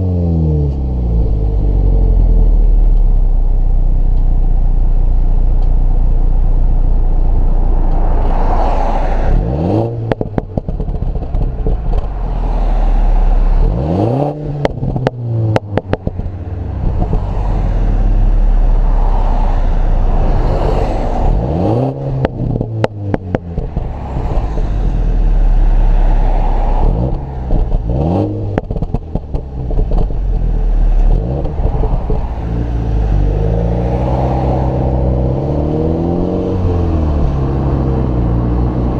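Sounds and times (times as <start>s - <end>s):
car engine revving: 0.0s - 38.9s
exhaust crackles and pops: 9.3s - 12.5s, 14.5s - 18.9s, 22.1s - 26.1s, 26.7s - 33.5s.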